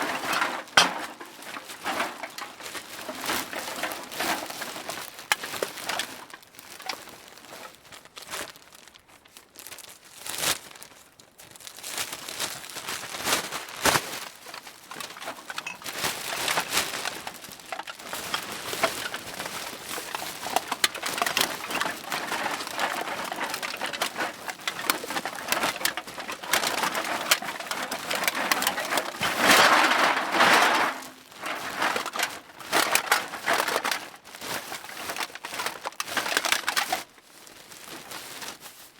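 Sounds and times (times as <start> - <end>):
cans clinking and clattering: 0.0 - 4.6, 20.0 - 34.9
bag rustling: 0.0 - 38.9.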